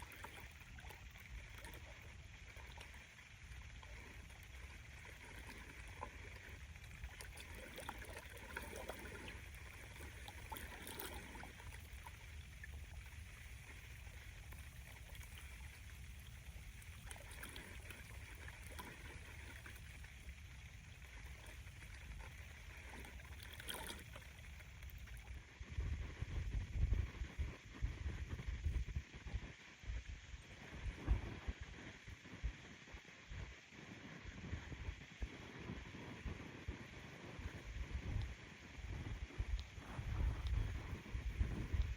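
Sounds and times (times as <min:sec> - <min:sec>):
wind rumble on microphone: 0:00.0 - 0:41.9
waves lapping at shore: 0:05.1 - 0:12.7.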